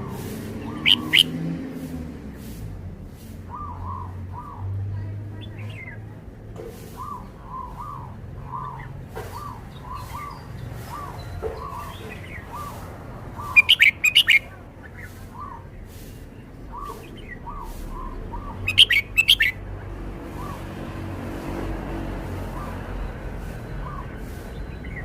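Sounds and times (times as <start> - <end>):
bulbul singing soft chirps: 6.9 - 19.7.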